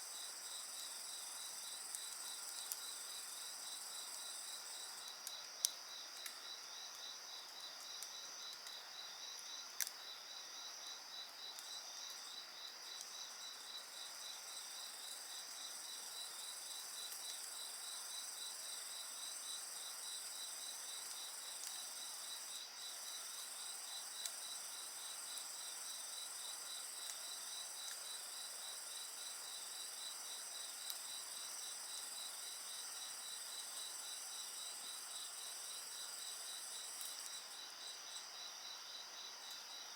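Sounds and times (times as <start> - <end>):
crickets and insects trilling: 0.0 - 39.9
wood fire crackles: 1.2 - 10.0, 11.2 - 18.0, 18.8 - 32.8
rapid pulsing insect trill: 5.8 - 39.9.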